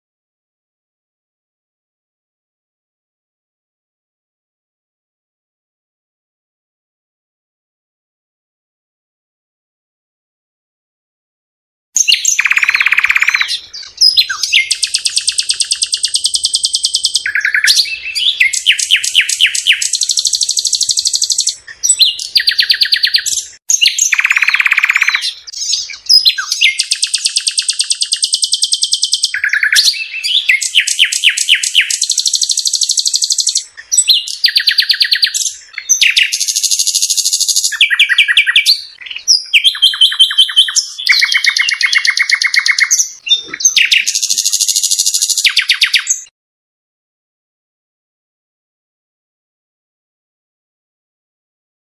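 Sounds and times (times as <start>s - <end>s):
songbird singing trills: 12.0s - 46.3s.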